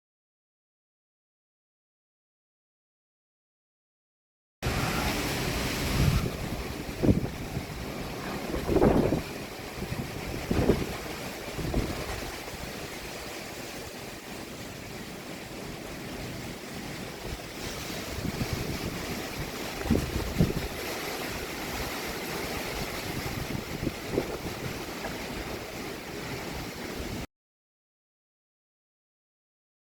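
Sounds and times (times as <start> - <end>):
gusting wind rushing: 4.6 - 27.3
wind buffeting microphone: 4.6 - 27.3.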